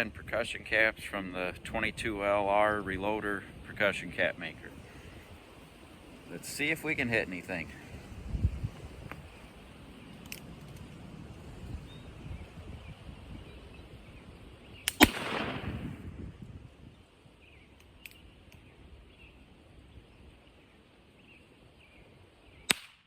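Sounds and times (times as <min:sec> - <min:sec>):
light clicks: 0:10.2 - 0:11.0
revolver gunshot: 0:14.9 - 0:16.1
percussion cap snap: 0:22.7 - 0:23.0.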